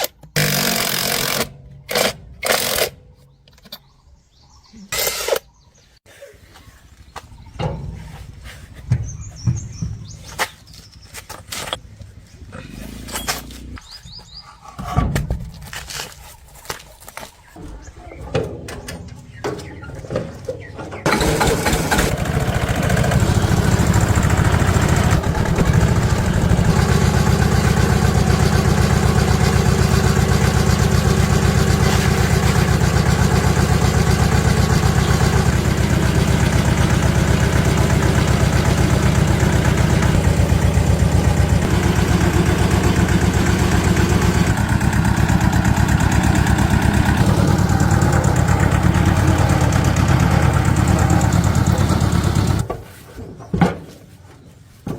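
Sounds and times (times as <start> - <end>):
small engine idling: 21.1 - 52.7.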